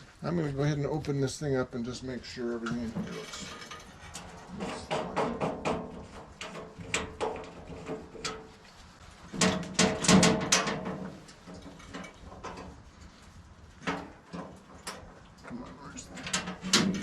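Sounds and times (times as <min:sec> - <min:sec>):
rattling knocks: 0:04.6 - 0:08.4, 0:09.4 - 0:12.7
metal doors clicking and clanking: 0:09.4 - 0:11.1, 0:16.1 - 0:17.0.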